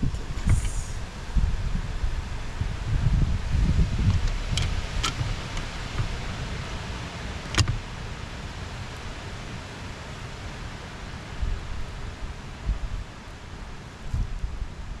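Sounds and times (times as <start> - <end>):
wind-like rustling: 0.0 - 15.0
sharp clicks: 7.5 - 7.8.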